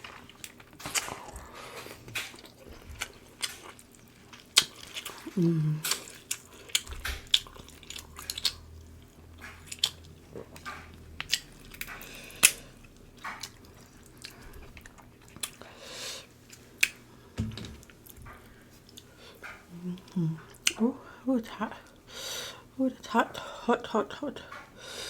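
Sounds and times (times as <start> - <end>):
chewing and smacking: 0.0 - 20.8
crab shell cracking: 3.3 - 8.6.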